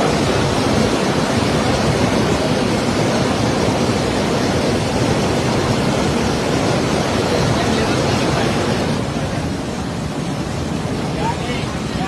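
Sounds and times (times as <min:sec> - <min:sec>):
water roaring from dam gates: 0:00.0 - 0:12.0.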